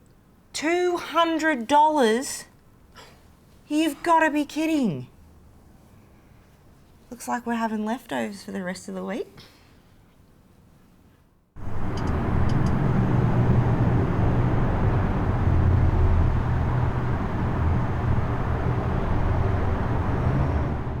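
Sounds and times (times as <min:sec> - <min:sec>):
vehicle engine and road rumble: 0:11.6 - 0:21.0.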